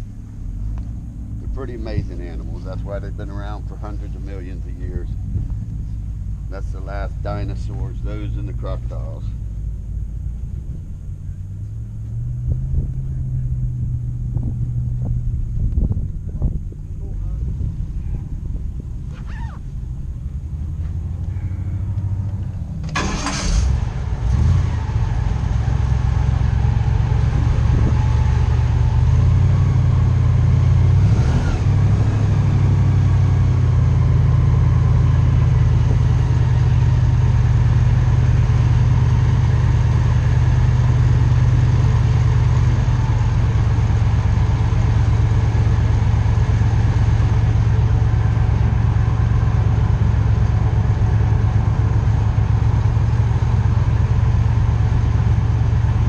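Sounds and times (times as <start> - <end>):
airboat engine and propeller drone: 1.4 - 11.9.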